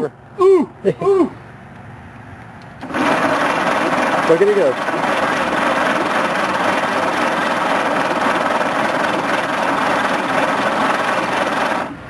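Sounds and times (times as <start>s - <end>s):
starter motor cranking engine: 2.8s - 12.0s.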